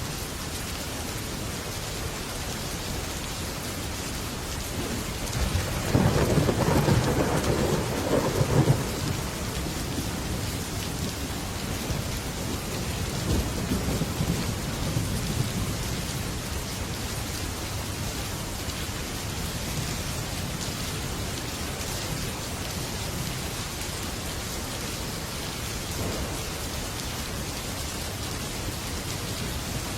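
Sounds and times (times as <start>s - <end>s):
heavy rain on a metal roof: 0.0s - 29.9s
thunder rumbling: 4.8s - 16.4s, 25.9s - 27.0s.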